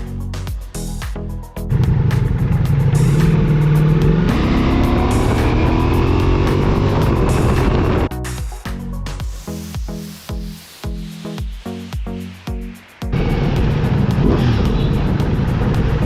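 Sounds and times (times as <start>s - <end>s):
music: 0.0s - 16.0s
motorcycle engine revving: 1.7s - 8.1s, 13.2s - 16.0s.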